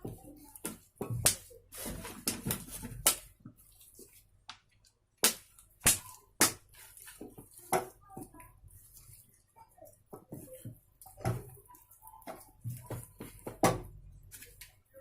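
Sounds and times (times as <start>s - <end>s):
wet squelching of food mixed by hand: 0.0s - 15.0s
sharp slaps: 5.2s - 6.6s.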